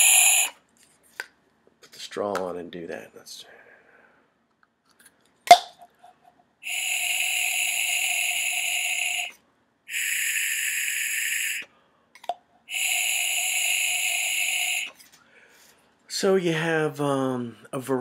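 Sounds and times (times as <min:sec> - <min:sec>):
blown hiss with faint whistle: 0:00.0 - 0:00.6, 0:06.6 - 0:11.7, 0:12.7 - 0:15.0.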